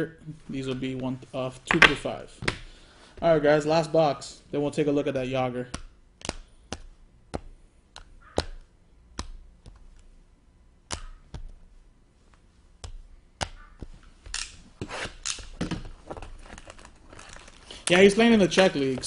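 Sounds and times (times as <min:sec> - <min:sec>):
cards clicking and tapping: 0:05.6 - 0:10.1, 0:10.8 - 0:11.6, 0:12.8 - 0:14.6
cards rustling: 0:13.6 - 0:19.0.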